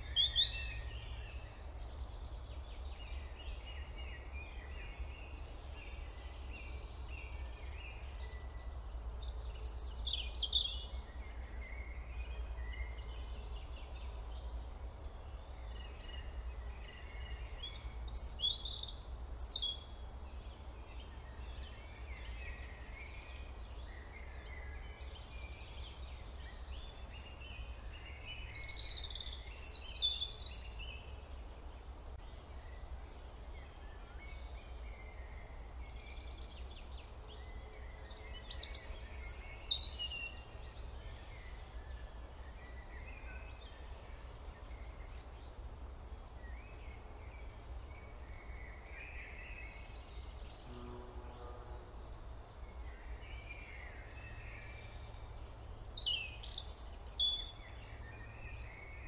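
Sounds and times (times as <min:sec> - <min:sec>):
birds singing chirping phrases: 0:00.0 - 0:59.0
soft bird twittering: 0:52.1 - 0:59.0.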